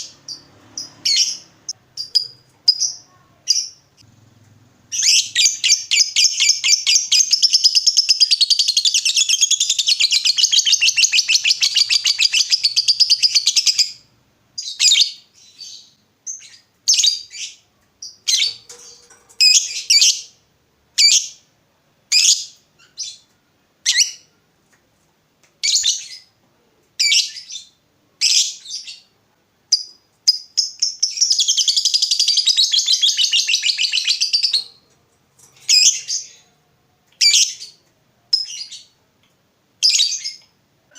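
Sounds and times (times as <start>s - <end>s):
lovebird sharp chirps: 0.0s - 3.9s, 4.9s - 14.0s, 29.7s - 34.8s.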